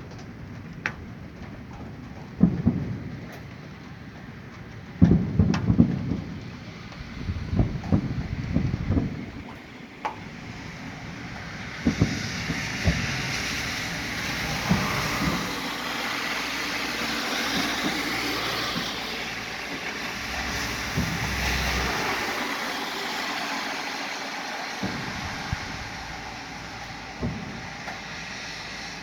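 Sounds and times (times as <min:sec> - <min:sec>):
continuous rumbling hiss: 0:00.0 - 0:29.0
distant fireworks booms: 0:00.0 - 0:29.0.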